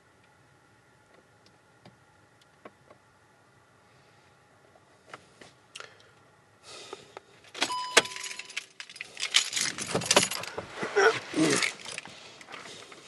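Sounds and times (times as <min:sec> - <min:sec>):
car keys jangling: 0:07.5 - 0:10.6, 0:11.5 - 0:12.6
short steady tone: 0:07.7 - 0:08.5.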